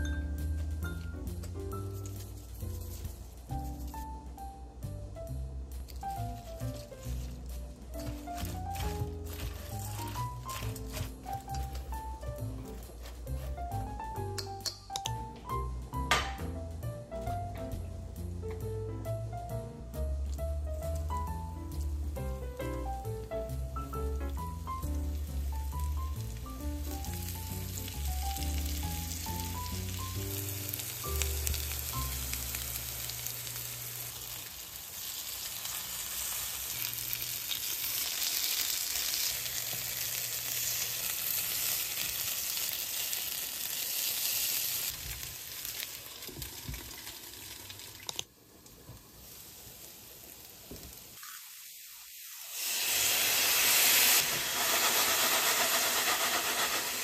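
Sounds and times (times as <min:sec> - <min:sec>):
light background music: 0:00.0 - 0:34.0
oil sizzling in a pan: 0:05.2 - 0:14.5, 0:19.9 - 0:57.0.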